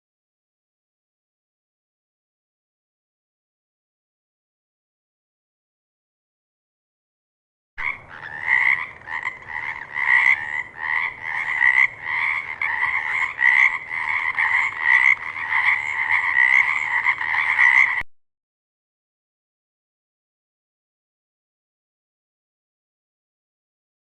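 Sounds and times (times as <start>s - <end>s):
frog croaking: 7.8s - 18.1s.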